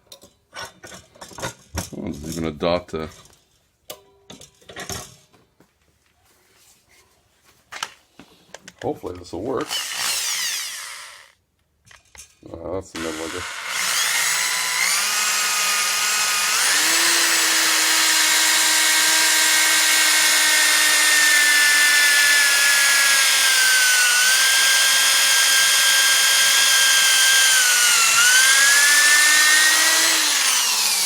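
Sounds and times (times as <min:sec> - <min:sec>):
electric drill whining: 0:09.6 - 0:11.4, 0:13.0 - 0:31.0.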